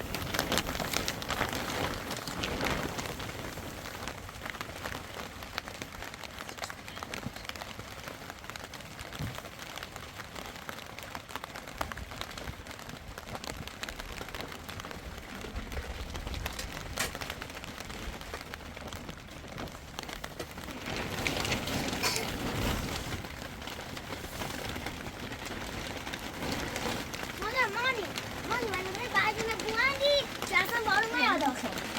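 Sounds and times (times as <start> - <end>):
steady rain falling: 0.0 - 31.9.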